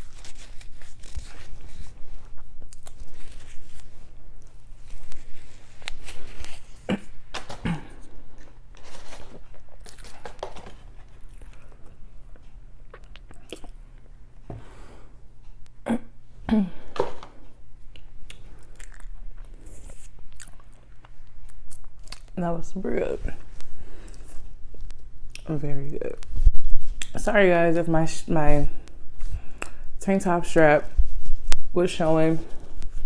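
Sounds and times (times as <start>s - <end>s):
chewing and biting food: 0.0s - 6.9s, 9.4s - 13.8s, 17.9s - 22.4s.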